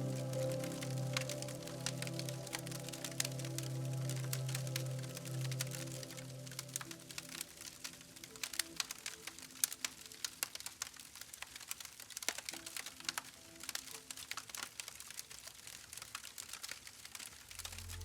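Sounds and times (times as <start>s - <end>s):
faint low tones: 0.0s - 8.3s
campfire crackling: 0.0s - 18.0s.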